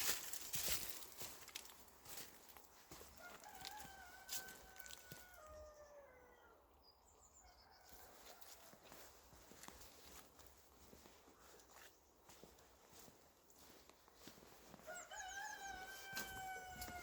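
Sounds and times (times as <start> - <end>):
faint rooster crowing: 2.9 - 9.7, 13.0 - 17.0.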